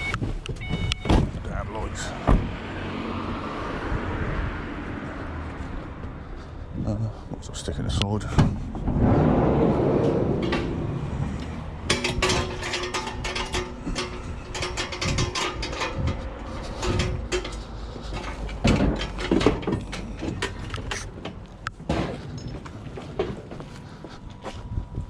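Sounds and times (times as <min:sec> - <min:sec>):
heavy knocks: 0:02.2 - 0:02.6
rapid metallic clicking and rattling: 0:11.4 - 0:21.1.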